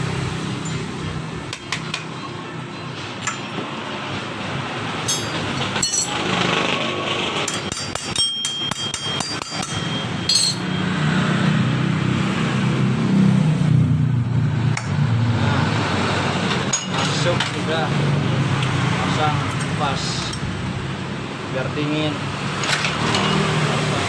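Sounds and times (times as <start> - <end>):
metal tools tapping and clinking: 1.5 - 2.2, 3.2 - 4.2, 5.0 - 6.6, 7.3 - 10.9, 16.5 - 17.8, 18.6 - 20.5, 22.6 - 23.8.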